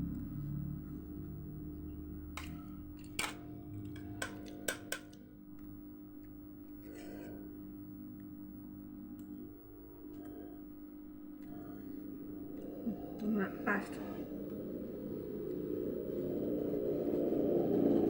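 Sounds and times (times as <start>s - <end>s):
steady low hum: 0.0s - 18.0s
spoon clinking on a plate: 2.4s - 5.2s.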